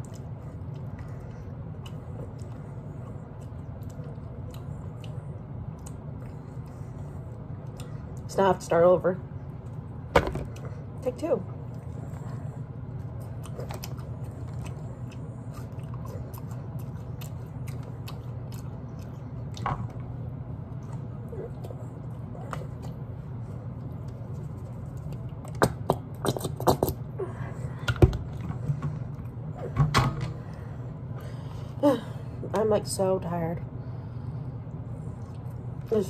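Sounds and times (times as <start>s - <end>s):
person chewing food: 0.0s - 8.3s, 11.6s - 29.5s
steady low hum: 0.0s - 36.0s.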